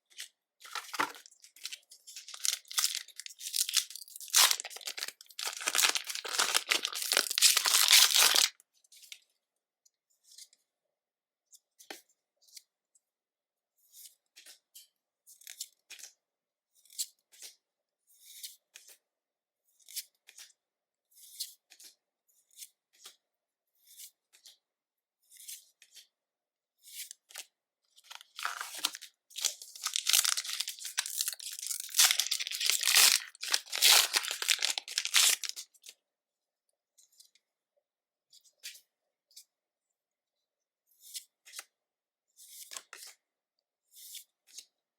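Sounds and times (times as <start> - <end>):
packaging crinkling and tearing: 0.7 - 8.5, 28.1 - 35.6.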